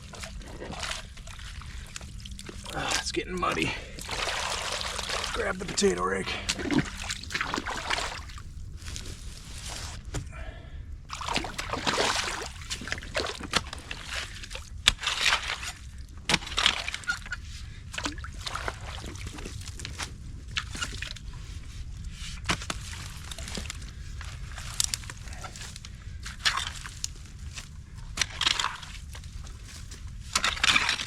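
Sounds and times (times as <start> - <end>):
water splashing and sloshing: 0.0 - 10.2, 11.1 - 31.0
sticks and stones knocking: 3.6 - 8.6.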